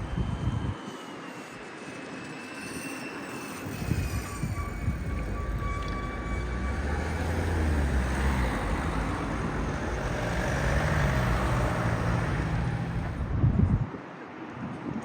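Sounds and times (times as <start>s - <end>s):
faint motor whine: 0.0s - 13.4s
vehicle passing with low rumble: 3.8s - 13.8s.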